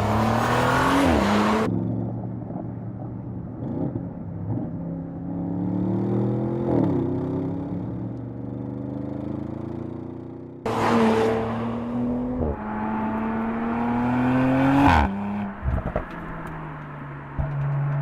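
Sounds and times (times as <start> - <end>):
car engine accelerating: 10.7 - 18.0.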